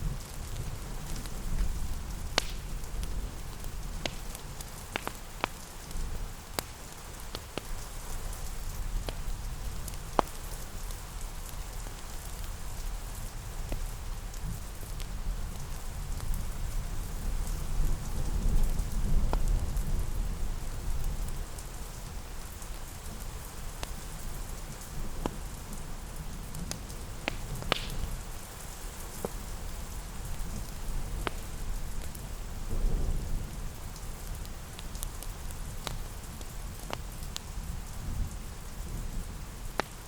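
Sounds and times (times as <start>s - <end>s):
fireplace crackling and popping: 0.0s - 40.0s
steady rain: 0.0s - 40.0s.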